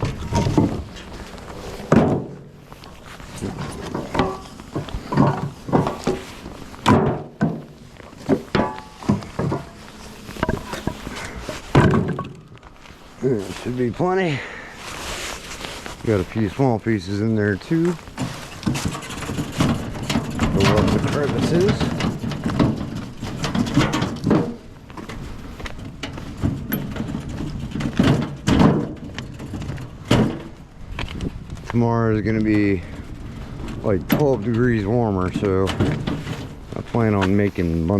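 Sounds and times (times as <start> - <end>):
firewood pieces knocking together: 0.0 - 12.8
firewood knocking and clunking: 0.0 - 14.7, 15.4 - 37.6.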